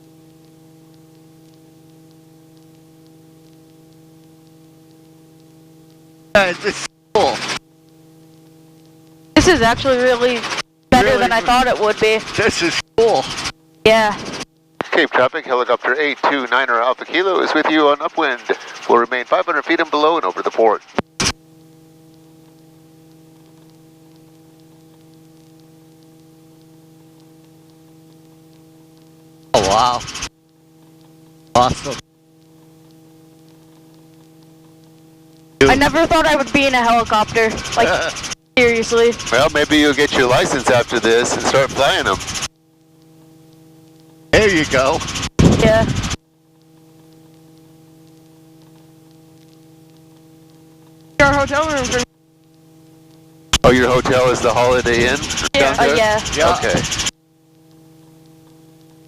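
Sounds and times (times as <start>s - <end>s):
faint ticks: 0.0s - 6.2s, 7.8s - 9.4s, 21.0s - 29.5s, 30.1s - 31.6s, 32.2s - 35.6s, 42.3s - 44.3s, 46.0s - 53.7s, 56.8s - 59.0s
helicopter hum through intercom: 9.4s - 14.4s, 15.0s - 20.4s, 29.6s - 30.3s, 31.6s - 32.0s, 35.6s - 42.5s, 44.4s - 46.2s, 51.2s - 52.1s, 53.6s - 57.1s.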